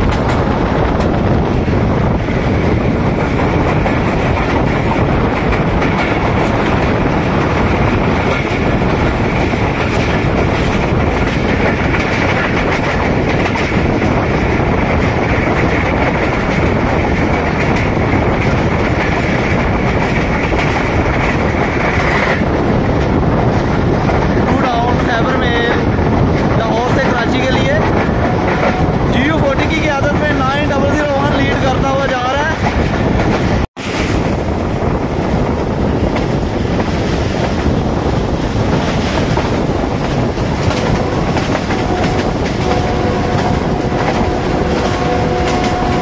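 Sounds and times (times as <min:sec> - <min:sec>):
wheels clacking over rail joints: 0:00.0 - 0:25.0, 0:36.1 - 0:46.0
train rumble: 0:00.0 - 0:46.0.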